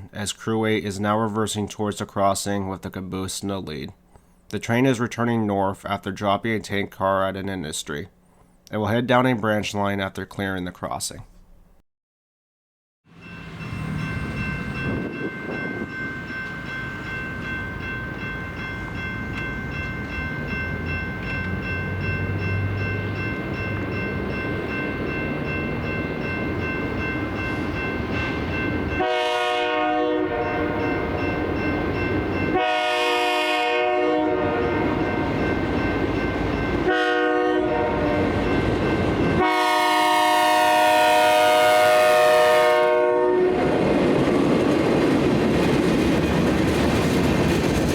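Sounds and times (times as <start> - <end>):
train rumbling: 13.1 - 47.9
steady high ringing: 13.2 - 29.4, 30.3 - 32.7, 34.5 - 39.5
train air horn blasts: 29.0 - 30.9, 32.5 - 35.2, 36.8 - 38.4, 39.4 - 43.7.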